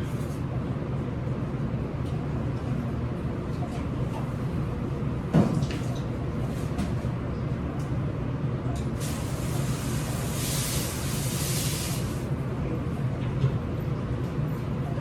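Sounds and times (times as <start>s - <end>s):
water spraying: 9.0s - 12.3s.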